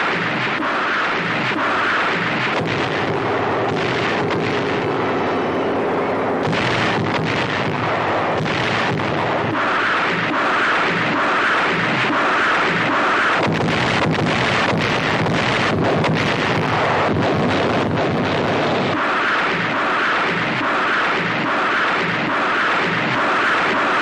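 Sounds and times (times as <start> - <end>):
rockets launching rushing noise: 0.0 - 24.0
sharp cracks: 0.0 - 24.0.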